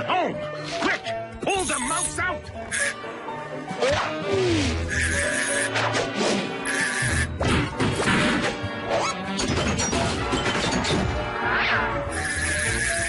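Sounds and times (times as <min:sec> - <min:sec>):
cartoon music: 0:00.8 - 0:06.0, 0:06.6 - 0:07.6.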